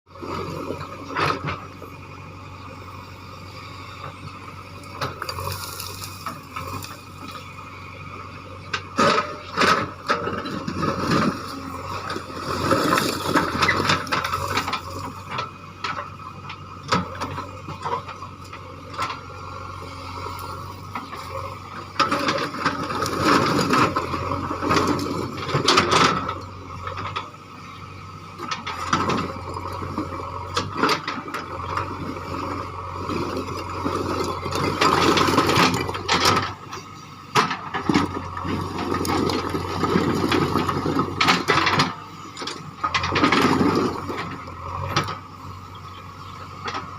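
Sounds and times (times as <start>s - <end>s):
backhoe loader engine running: 0.1s - 46.9s
bucket clanking and scraping rock: 9.0s - 15.4s, 33.0s - 36.6s, 37.4s - 45.2s.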